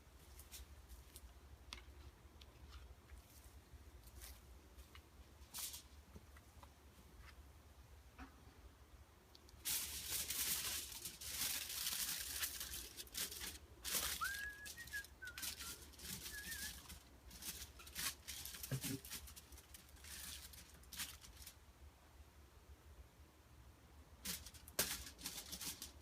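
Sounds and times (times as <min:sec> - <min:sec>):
hissing and crackling: 0:09.3 - 0:21.6
whistled bird call: 0:14.0 - 0:16.9.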